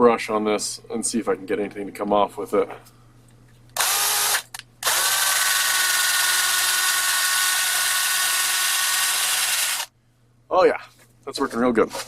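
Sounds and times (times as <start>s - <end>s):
power drill with wire brush scrubbing metal: 3.8s - 9.9s.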